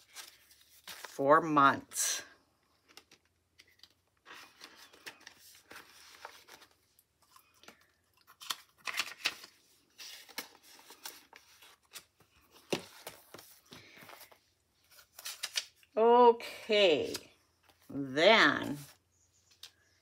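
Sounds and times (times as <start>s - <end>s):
paper money rustling: 2.8s - 15.8s.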